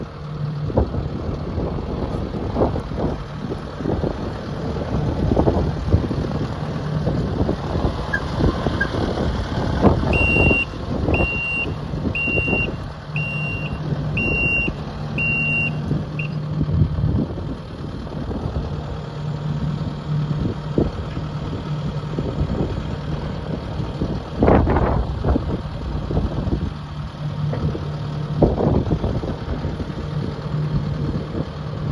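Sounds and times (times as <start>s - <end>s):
diesel engine running: 0.0s - 31.9s
backup alarm beeping: 8.1s - 9.0s, 10.1s - 16.4s.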